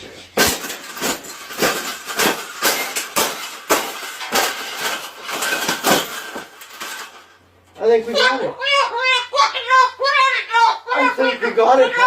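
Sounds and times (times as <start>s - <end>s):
hard objects clattering: 0.2s - 7.7s.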